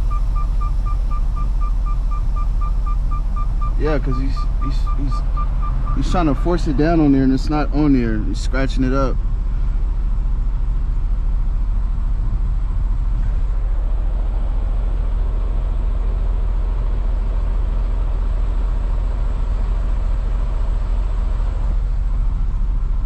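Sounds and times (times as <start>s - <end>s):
truck diesel engine idling: 0.0s - 23.0s.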